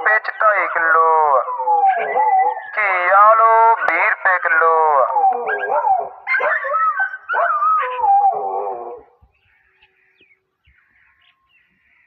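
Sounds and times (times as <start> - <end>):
dog howling: 1.3 - 2.8, 5.0 - 9.2.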